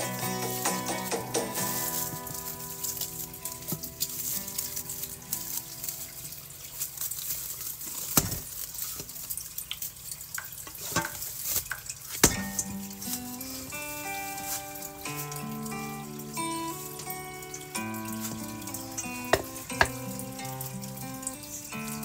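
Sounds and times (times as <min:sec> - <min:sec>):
food sizzling in hot oil: 0:00.0 - 0:22.0
sharp knocks: 0:19.3 - 0:20.0.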